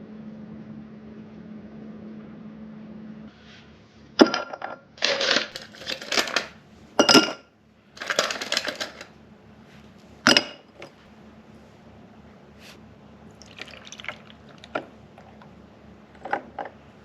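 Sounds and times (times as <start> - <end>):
small objects clattering: 5.0 - 7.4, 8.0 - 9.1, 16.1 - 17.0.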